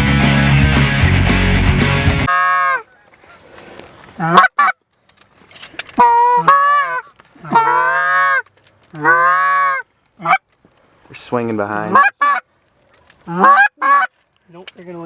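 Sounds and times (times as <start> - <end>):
goose honking: 6.0 - 8.4, 9.0 - 10.4, 11.9 - 12.4, 13.3 - 14.1.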